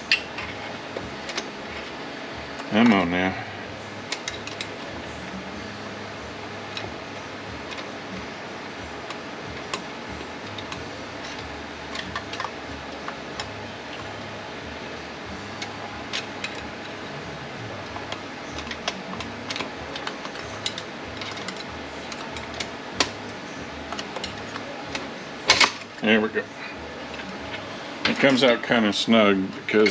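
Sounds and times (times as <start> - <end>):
steady low hum: 0.0 - 29.9
metallic clicks and scrapes: 17.9 - 23.2.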